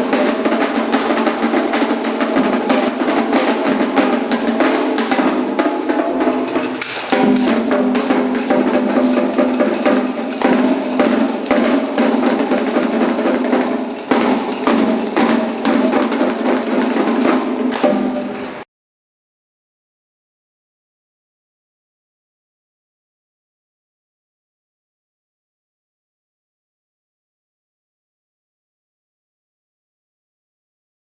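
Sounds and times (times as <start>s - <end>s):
rapid hand drumming: 0.0s - 18.6s.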